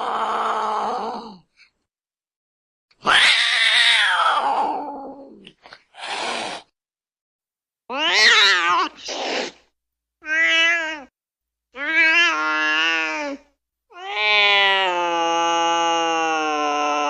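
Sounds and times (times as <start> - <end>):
cat yowling: 3.0 - 5.4, 7.9 - 9.1, 10.2 - 11.1, 11.8 - 17.0.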